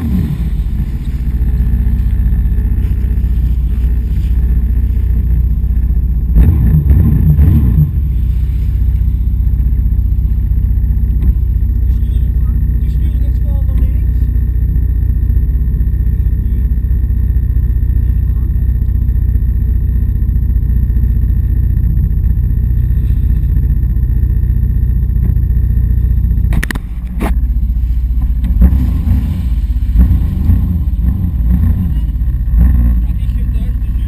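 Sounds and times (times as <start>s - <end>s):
jet ski engine droning: 0.0s - 34.0s
loud thumps: 26.4s - 27.4s.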